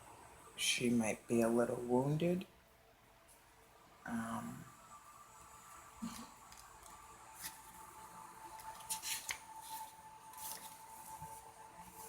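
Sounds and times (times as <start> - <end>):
faint steady hum: 0.0 - 12.0
paper rustling: 6.5 - 12.0.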